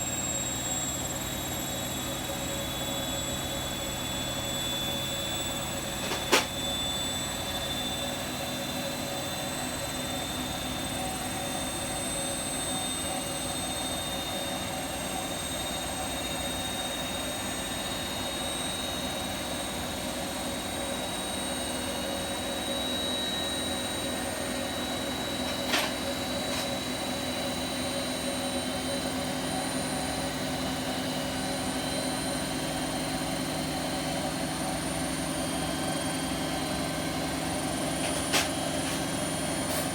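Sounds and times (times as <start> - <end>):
washing machine spinning: 3.1 - 7.8, 24.2 - 27.4.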